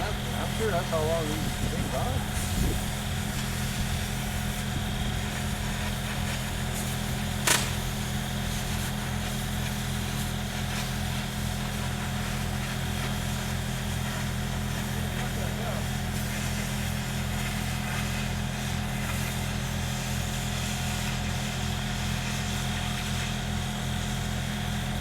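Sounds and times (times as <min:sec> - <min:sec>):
sharp clank: 0:07.4 - 0:08.0.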